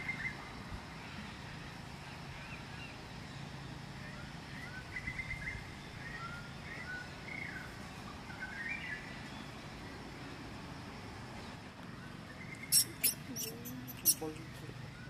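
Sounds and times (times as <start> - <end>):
steady low hum: 12.2 - 15.0
birds chirping and trilling: 12.4 - 15.0.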